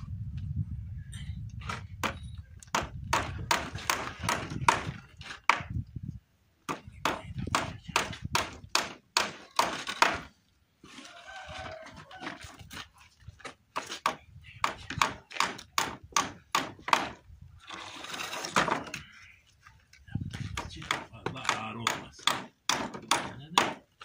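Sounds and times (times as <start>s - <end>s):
hammer driving nails into wood: 1.7s - 5.7s, 6.7s - 10.3s, 13.8s - 17.2s, 20.6s - 23.9s.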